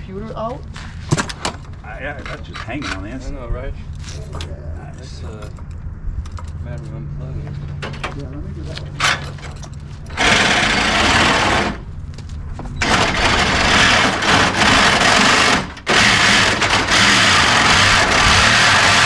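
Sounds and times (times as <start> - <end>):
power tool cutting metal: 10.1 - 11.8, 12.8 - 19.0.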